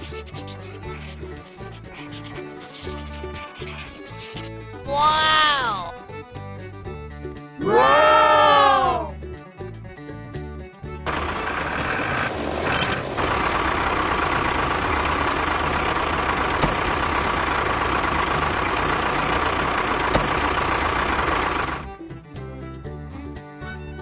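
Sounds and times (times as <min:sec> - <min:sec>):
small vehicle motor running: 0:11.1 - 0:22.0.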